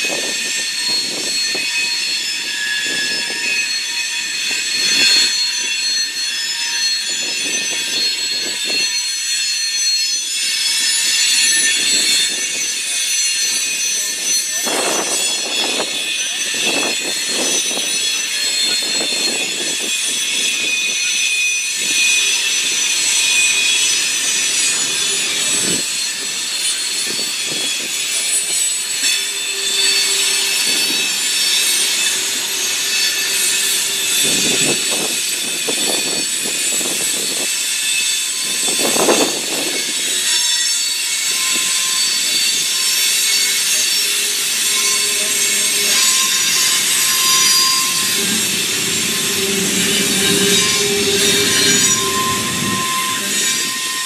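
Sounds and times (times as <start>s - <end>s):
high wheel squeal: 0.0s - 54.0s
freight cars rolling: 41.1s - 54.0s.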